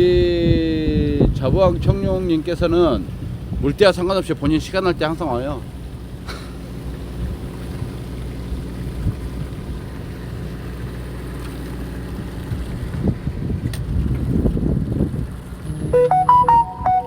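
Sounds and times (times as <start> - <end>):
wind buffeting microphone: 0.0 - 6.2, 7.0 - 10.3, 12.2 - 16.0
boat engine humming: 0.8 - 17.0.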